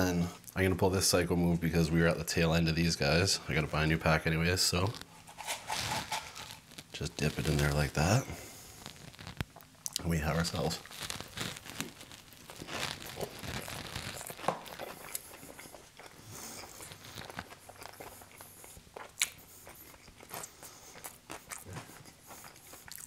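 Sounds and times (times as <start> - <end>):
chewing crunchy food: 4.9 - 23.0.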